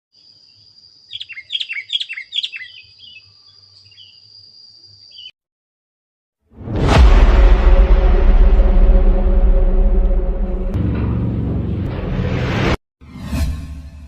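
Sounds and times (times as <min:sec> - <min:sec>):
bird singing whistled notes: 0:01.1 - 0:04.2, 0:05.0 - 0:05.4
loud rushing noise: 0:06.6 - 0:12.8.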